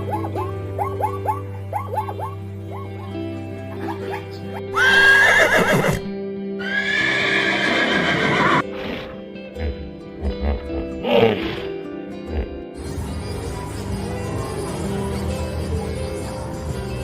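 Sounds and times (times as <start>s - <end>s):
background music: 0.0s - 17.0s
horse whinnying: 4.7s - 9.2s.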